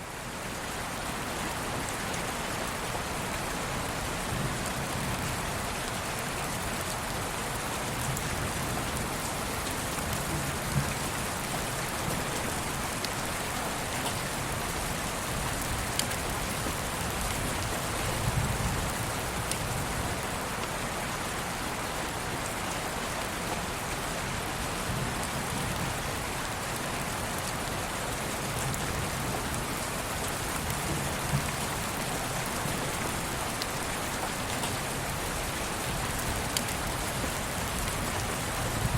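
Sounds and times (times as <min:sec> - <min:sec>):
steady rain falling: 0:00.0 - 0:38.9
rain drops tapping: 0:06.9 - 0:20.8, 0:24.8 - 0:38.9.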